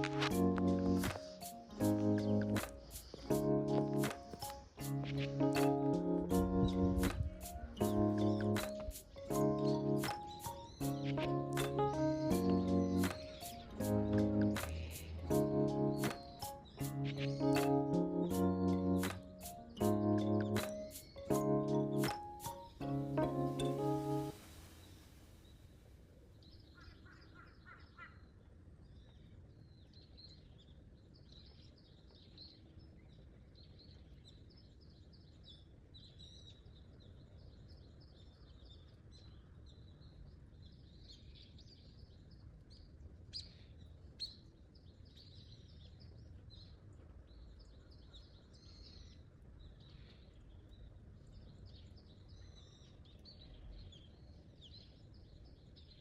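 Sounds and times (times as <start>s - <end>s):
small birds chirping: 0.0s - 25.6s.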